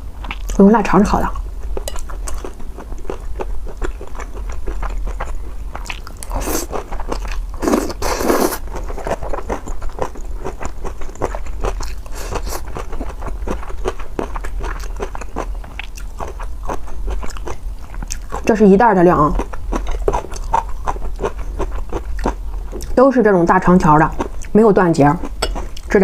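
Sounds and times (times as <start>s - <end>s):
chewing and biting food: 1.6s - 18.5s, 19.3s - 23.0s.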